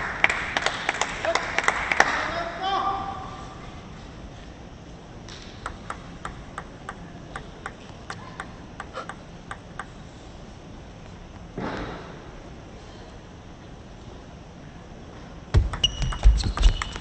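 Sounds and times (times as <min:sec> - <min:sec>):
table tennis ball clicking: 0:05.6 - 0:10.0.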